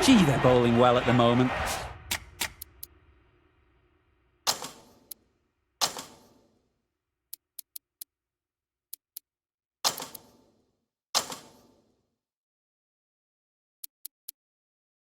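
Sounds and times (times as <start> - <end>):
sharp knocks: 5.8 - 6.4.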